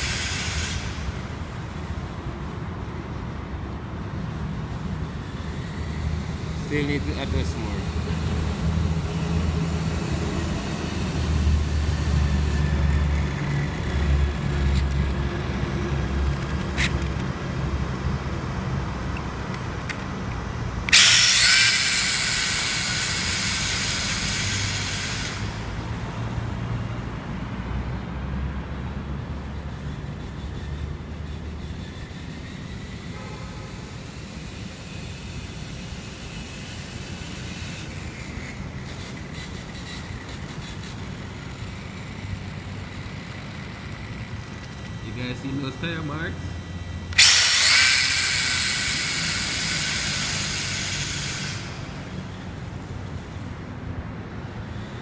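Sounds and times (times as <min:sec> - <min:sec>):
electric motor whine: 0:05.3 - 0:26.1, 0:31.5 - 0:53.1.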